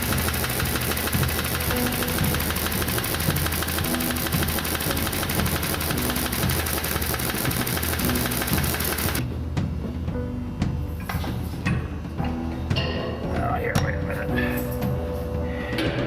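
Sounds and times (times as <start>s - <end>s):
machine pulsing knock: 0.0s - 9.2s.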